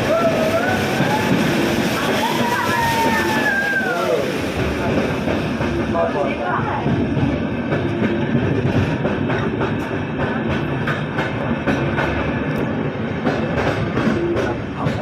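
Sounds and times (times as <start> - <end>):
train rumbling on rails: 0.0 - 15.0
wheels clacking over rail joints: 0.0 - 15.0.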